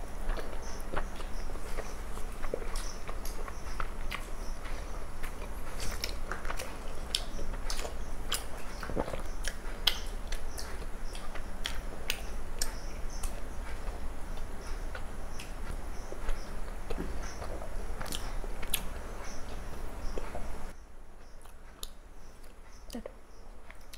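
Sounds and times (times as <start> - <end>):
chewing and lip smacks: 0.0 - 20.7, 21.4 - 23.9
sharp wet mouth clicks: 5.9 - 13.4.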